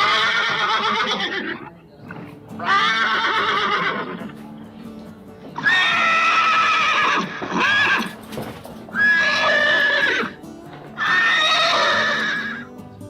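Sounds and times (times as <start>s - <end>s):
horse neighing: 0.0s - 4.3s, 5.6s - 8.2s, 9.0s - 10.4s, 11.0s - 12.7s.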